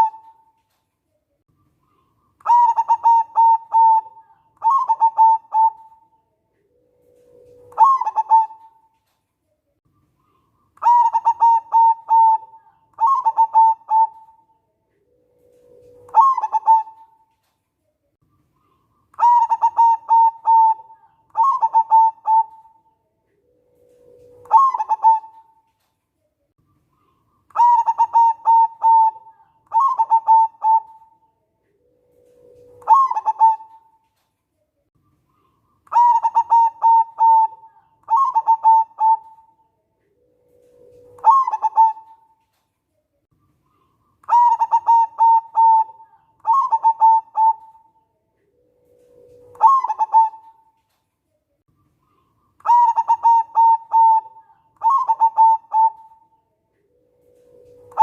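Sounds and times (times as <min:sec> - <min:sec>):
dove cooing: 0:00.0 - 0:00.7, 0:01.9 - 0:09.1, 0:10.2 - 0:17.4, 0:18.6 - 0:25.8, 0:27.0 - 0:34.2, 0:35.3 - 0:42.6, 0:43.7 - 0:51.0, 0:52.0 - 0:58.0.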